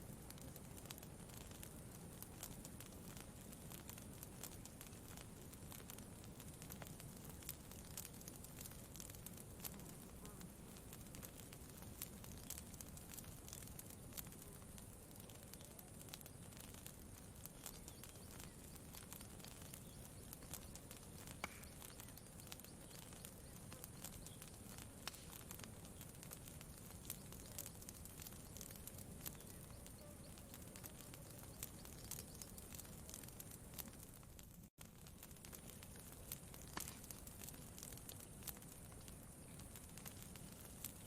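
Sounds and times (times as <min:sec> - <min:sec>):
campfire crackling: 0:00.0 - 0:41.0.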